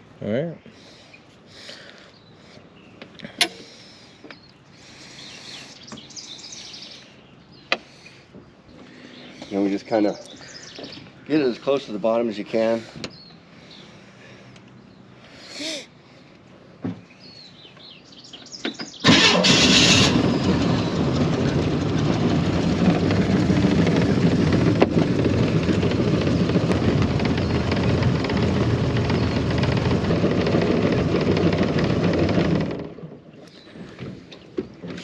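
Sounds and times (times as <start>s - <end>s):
outboard motor running: 19.0s - 35.0s.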